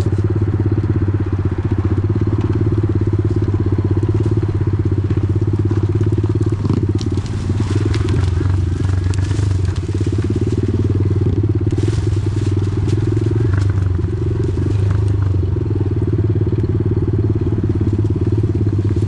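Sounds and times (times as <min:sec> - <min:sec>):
off-road vehicle engine running: 0:00.0 - 0:19.0
light clicks from trail: 0:05.8 - 0:11.0, 0:11.7 - 0:15.5.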